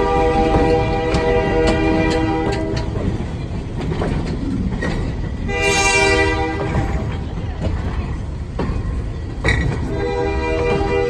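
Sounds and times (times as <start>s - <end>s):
locomotive horn blast: 0.0s - 3.0s, 5.4s - 7.1s, 9.8s - 11.0s
train wheels rumbling: 0.0s - 11.0s
wheels clacking over rail joints: 0.0s - 11.0s.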